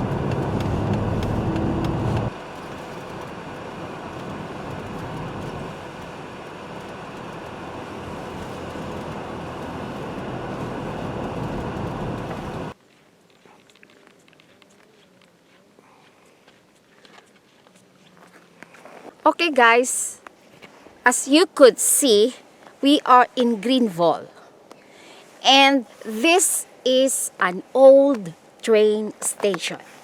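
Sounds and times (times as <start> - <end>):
car engine and road noise: 0.0 - 12.8.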